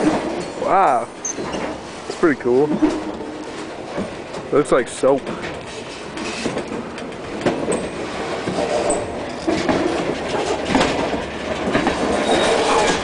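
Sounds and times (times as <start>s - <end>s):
train rolling on rails: 0.0s - 13.0s
wheel squeals: 11.9s - 13.0s.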